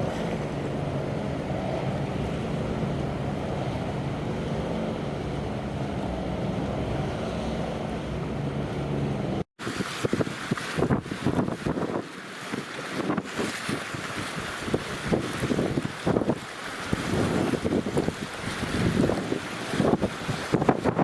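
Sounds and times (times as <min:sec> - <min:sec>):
ship engine humming: 0:00.0 - 0:09.8, 0:14.0 - 0:20.8
sea rushing: 0:00.0 - 0:21.0
strong wind: 0:00.0 - 0:21.0
wind buffeting microphone: 0:00.0 - 0:21.0.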